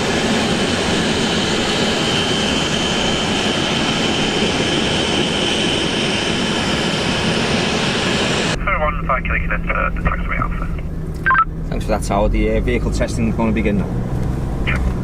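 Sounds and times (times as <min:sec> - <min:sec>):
jet engine roaring: 0:00.0 - 0:11.8.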